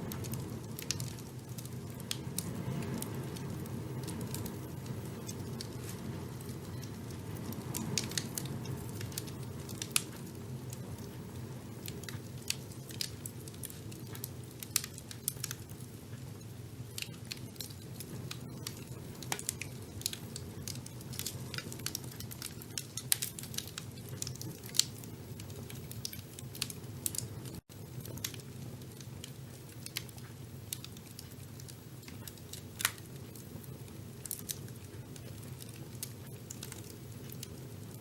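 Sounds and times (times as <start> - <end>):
fire crackling in fireplace: 0.0 - 38.0.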